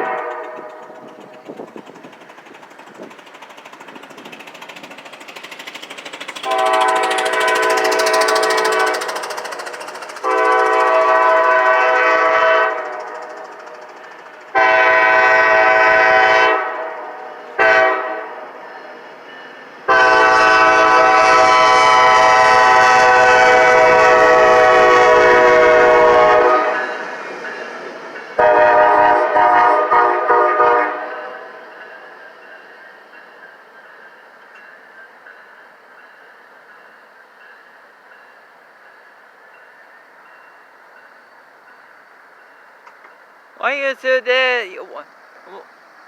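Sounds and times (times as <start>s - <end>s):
locomotive air horn blasts: 0.0s - 0.8s, 6.4s - 9.1s, 10.2s - 12.9s, 14.6s - 17.0s, 17.6s - 18.4s, 19.9s - 26.8s, 28.4s - 31.4s.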